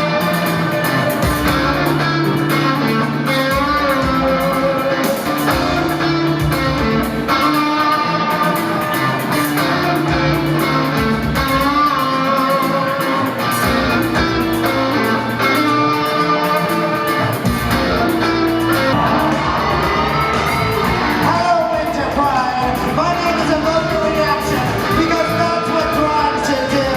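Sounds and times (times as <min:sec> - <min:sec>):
electric guitar band music: 0:00.0 - 0:26.9
person singing: 0:18.8 - 0:26.9.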